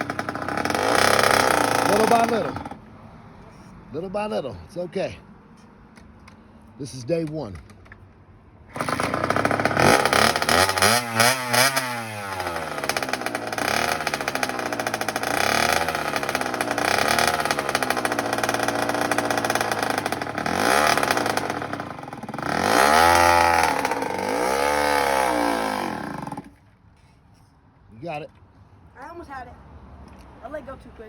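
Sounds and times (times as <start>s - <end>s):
dirt bike engine revving: 0.0s - 2.8s, 8.7s - 26.6s.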